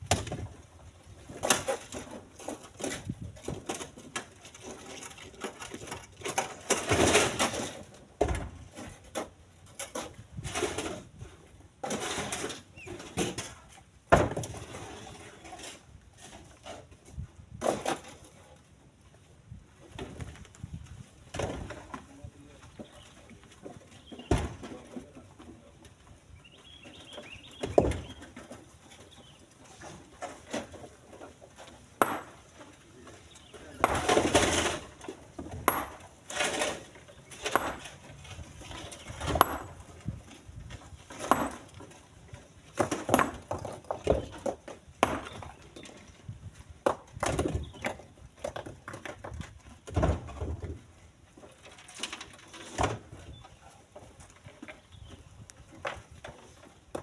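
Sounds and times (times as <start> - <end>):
stones clacking and thudding: 41.1 - 41.9, 42.7 - 45.6.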